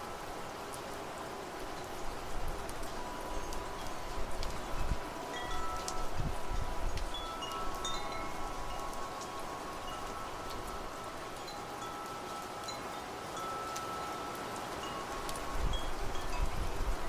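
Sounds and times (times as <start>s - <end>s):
rain hiss: 0.0s - 17.0s
wind gusts: 0.0s - 17.0s
wind chimes ringing: 2.9s - 17.0s.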